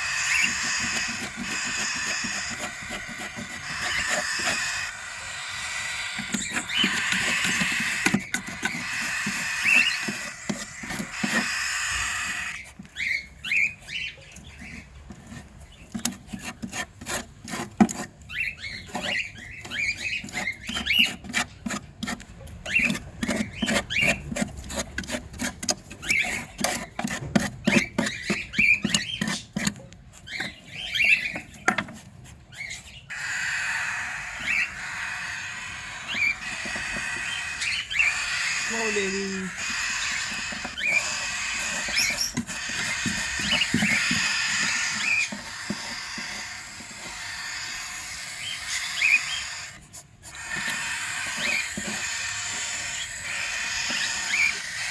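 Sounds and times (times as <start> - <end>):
bird chirps: 0.0 - 14.9, 30.2 - 31.9, 32.5 - 49.8, 50.4 - 54.9
quick clicks and scratches: 0.1 - 5.3, 6.0 - 13.2, 13.8 - 33.2, 39.5 - 54.9.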